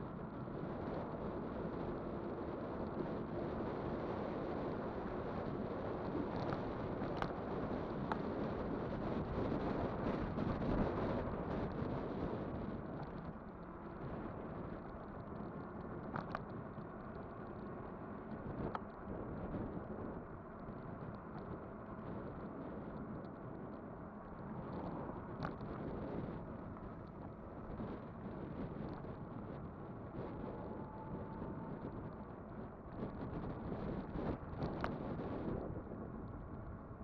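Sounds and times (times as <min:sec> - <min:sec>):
road rumble: 0:00.0 - 0:37.0
wind buffeting microphone: 0:00.0 - 0:37.0.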